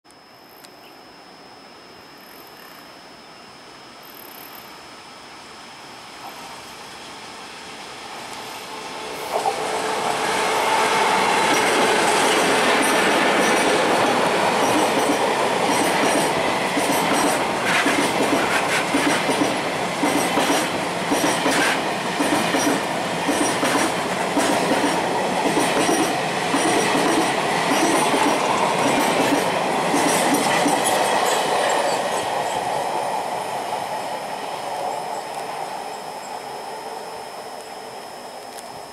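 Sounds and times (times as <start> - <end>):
freight train rumble: 7.8 - 38.0
wheels clacking over rail joints: 11.0 - 32.4.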